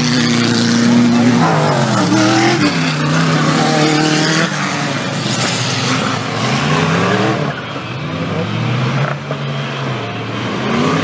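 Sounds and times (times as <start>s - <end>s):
tyre and dirt noise: 0.0s - 7.9s
off-road race engines: 0.0s - 11.0s.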